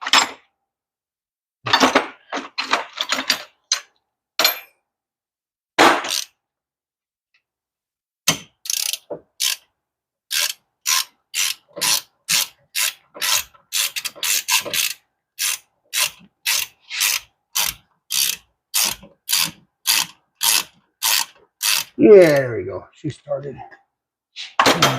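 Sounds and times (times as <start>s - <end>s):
ratchet wrench clicking: 6.1s - 6.3s, 8.6s - 9.7s, 10.3s - 22.0s.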